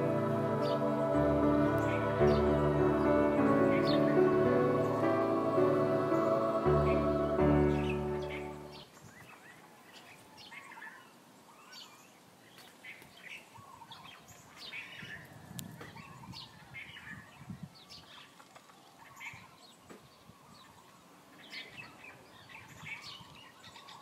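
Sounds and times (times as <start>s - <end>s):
music: 0.0s - 8.8s
songbirds chirping: 0.0s - 24.0s.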